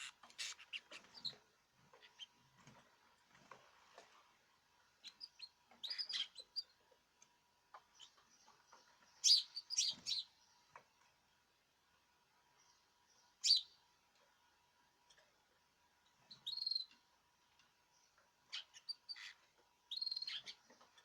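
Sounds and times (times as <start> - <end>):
caged birds chirping: 0.0 - 2.7, 5.0 - 6.8, 7.8 - 10.8, 12.5 - 13.8, 16.2 - 17.0, 17.6 - 21.0.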